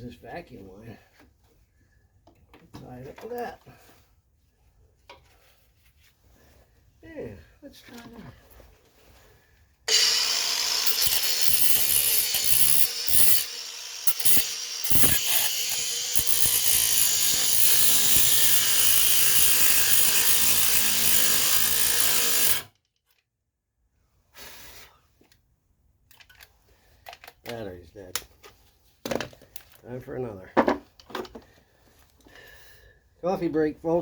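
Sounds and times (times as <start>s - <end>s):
angle grinder cutting metal: 9.9s - 22.7s.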